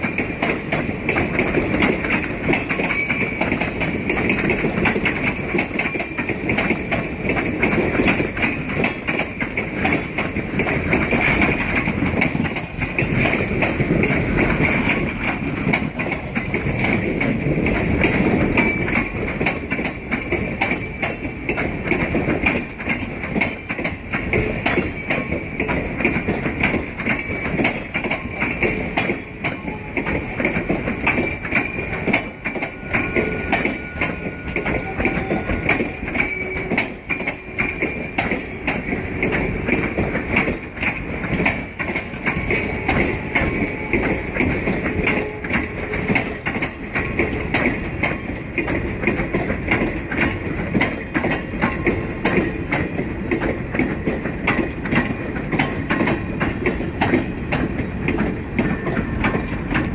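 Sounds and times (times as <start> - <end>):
train wheels clattering on rails: 0.0 - 59.9.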